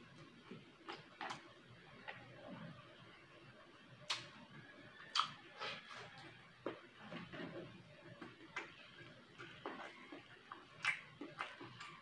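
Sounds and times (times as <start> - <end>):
person chewing: 5.1 - 12.0.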